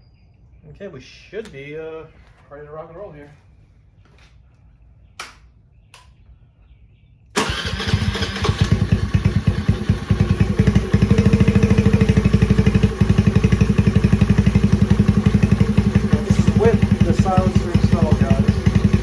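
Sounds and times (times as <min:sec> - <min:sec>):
motorcycle engine starting and idling: 0:07.4 - 0:19.0.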